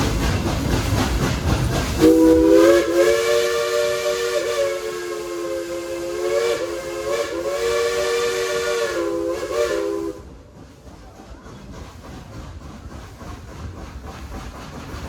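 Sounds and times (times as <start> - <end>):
train running: 0.0 - 15.0
steam whistle chord: 2.0 - 10.2.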